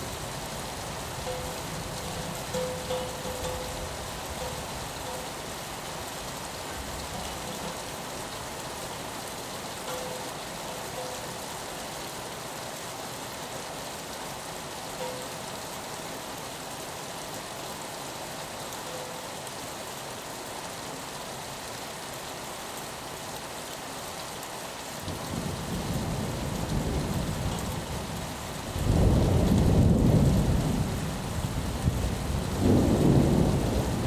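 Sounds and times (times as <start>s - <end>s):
rain on a window: 0.0s - 34.0s
thunder rumble: 28.8s - 34.0s.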